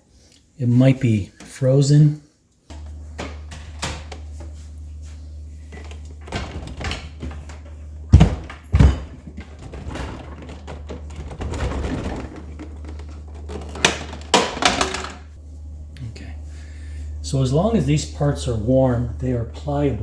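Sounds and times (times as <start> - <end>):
steady low hum: 0.0 - 20.0
plastic filter knocks and clunks: 8.1 - 15.2.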